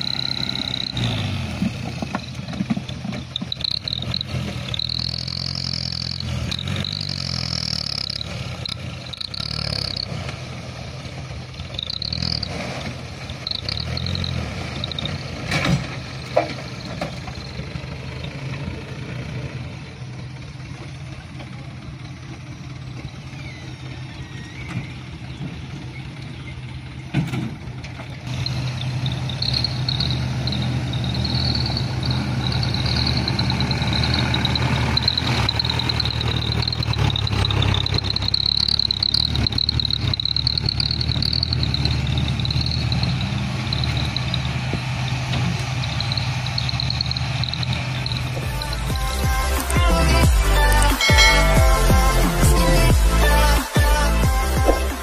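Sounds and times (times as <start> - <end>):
diesel truck engine running: 0.0 - 55.0
high wavering whine: 45.5 - 53.8.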